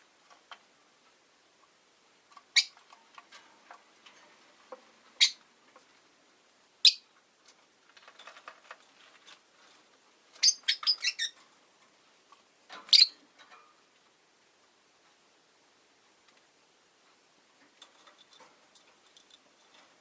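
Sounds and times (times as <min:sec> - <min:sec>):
lovebirds chirping: 0:02.5 - 0:02.9, 0:05.1 - 0:05.5, 0:06.8 - 0:07.2, 0:10.3 - 0:11.4, 0:12.8 - 0:13.2
faint scratchy clicks: 0:16.2 - 0:20.0.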